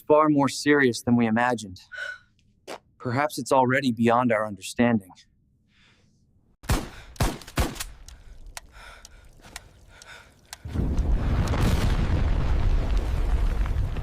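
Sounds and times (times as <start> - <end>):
faint clicks: 8.0 - 11.1
deep explosion rumble: 10.7 - 14.0.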